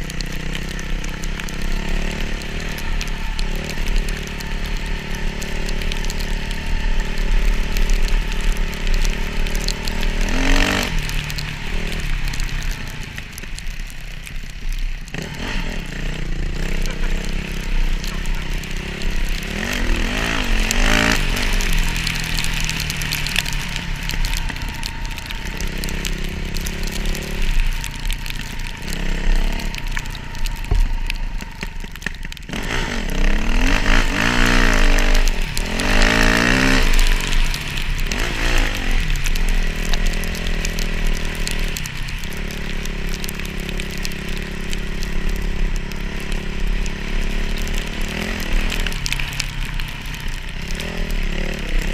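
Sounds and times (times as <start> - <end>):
dirt bike engine revving: 0.0 - 12.4, 15.1 - 31.9, 32.5 - 41.7.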